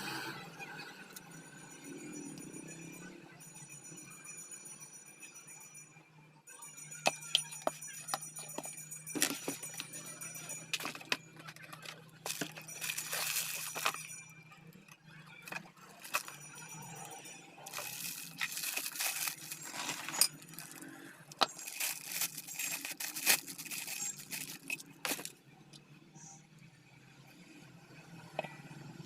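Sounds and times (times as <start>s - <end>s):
metal tools clinking: 7.1s - 14.2s, 14.8s - 25.3s
metal scraping: 15.4s - 25.3s.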